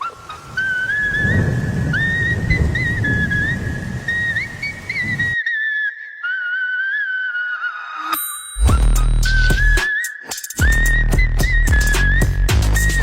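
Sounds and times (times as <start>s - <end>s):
rain-like rushing noise: 0.0s - 5.4s
high whistle-like tune: 0.0s - 13.0s.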